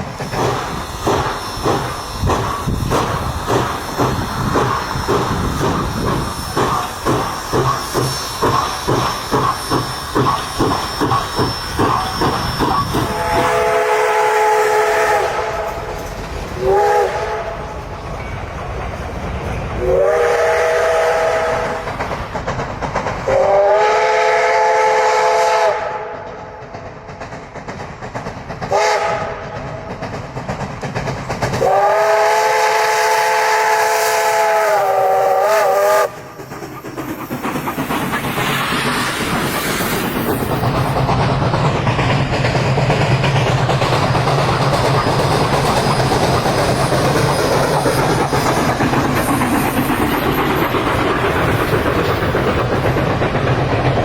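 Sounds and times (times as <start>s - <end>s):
wheels clacking on rail joints: 0.0s - 23.7s, 26.1s - 33.6s, 35.6s - 54.0s
steam hiss: 0.0s - 54.0s
train rumble: 0.0s - 54.0s
steam locomotive whistle: 6.0s - 15.9s, 16.6s - 17.9s, 19.8s - 21.9s, 23.3s - 26.4s, 28.7s - 29.6s, 31.6s - 36.4s.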